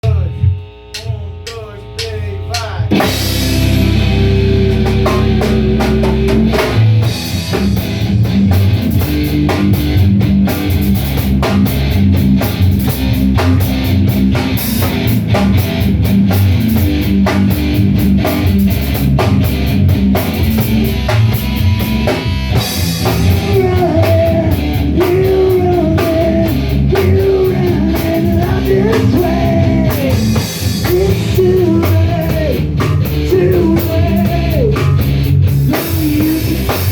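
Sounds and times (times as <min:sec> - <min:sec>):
rock band playing: 0:00.0 - 0:36.9
person singing: 0:01.0 - 0:06.8, 0:23.0 - 0:35.0, 0:35.7 - 0:36.9.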